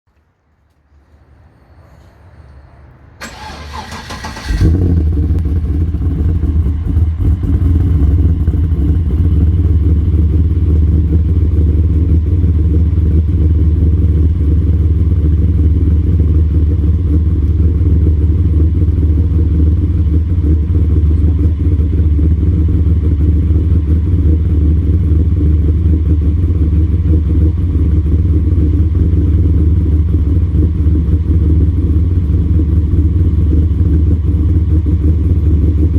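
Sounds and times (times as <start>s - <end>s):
starter motor cranking: 3.2s - 4.9s
engine idling with deep rumble: 3.2s - 35.9s.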